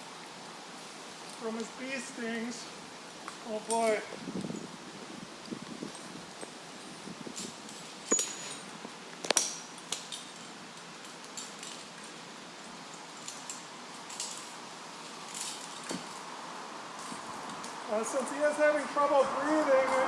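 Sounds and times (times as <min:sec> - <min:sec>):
faint steady hiss: 0:00.0 - 0:20.0
metal climbing hardware clinking: 0:03.6 - 0:04.6, 0:07.4 - 0:16.2.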